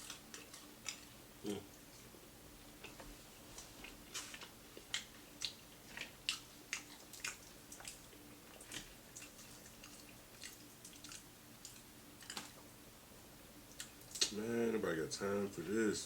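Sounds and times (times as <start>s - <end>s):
crunchy chewing: 0.0s - 2.1s, 2.8s - 12.6s
faint steady hum: 0.0s - 16.0s.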